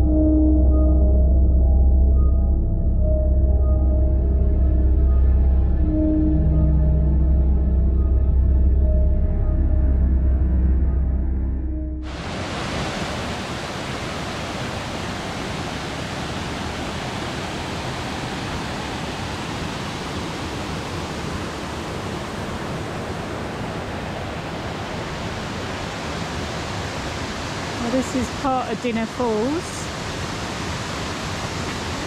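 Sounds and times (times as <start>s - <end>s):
waterfall rushing: 12.0s - 32.0s.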